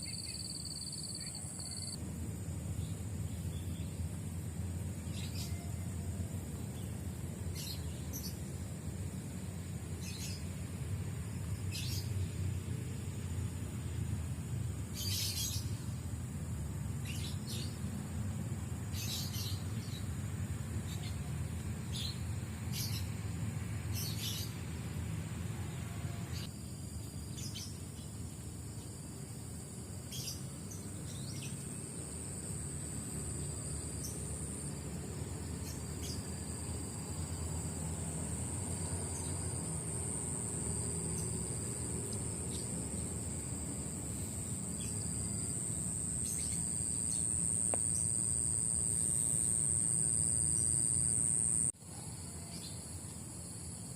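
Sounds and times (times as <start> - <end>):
high-pitched insect buzz: 31.2 - 51.8.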